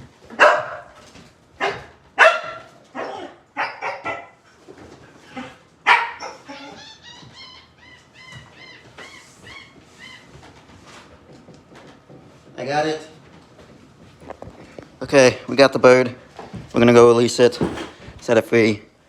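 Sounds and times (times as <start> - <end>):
dog barking: 0.3 - 1.0, 1.6 - 4.4, 5.4 - 6.8.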